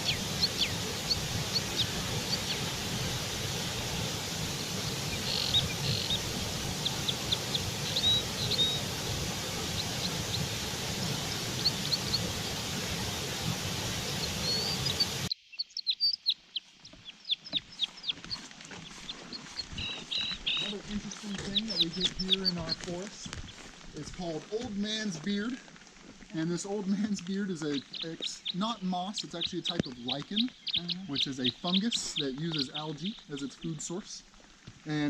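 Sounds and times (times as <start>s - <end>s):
steady hiss and rumble: 0.0s - 15.3s
small birds chirping: 0.0s - 25.6s, 26.3s - 35.0s.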